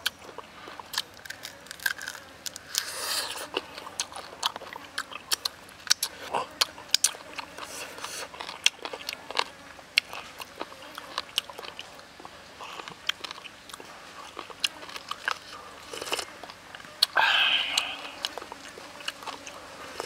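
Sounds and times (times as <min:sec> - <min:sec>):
man chewing: 0:00.0 - 0:20.0
sip from a cup: 0:17.1 - 0:18.5.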